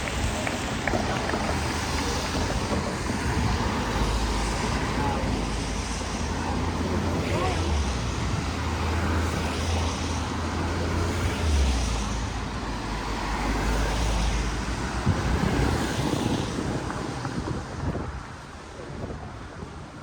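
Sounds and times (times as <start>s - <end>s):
wind on microphone: 0.0s - 7.3s, 14.4s - 20.0s
vehicle engine drone: 0.0s - 18.0s
street traffic hiss: 0.0s - 20.0s.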